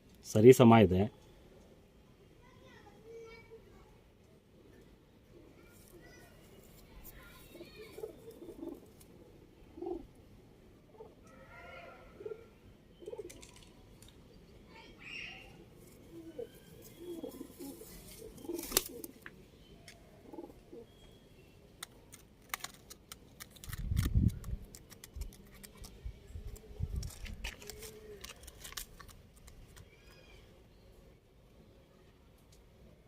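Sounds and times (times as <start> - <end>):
pigeons cooing: 7.4 - 10.2, 10.8 - 13.6, 15.5 - 19.3, 20.1 - 20.9
sharp clicks: 21.8 - 26.7.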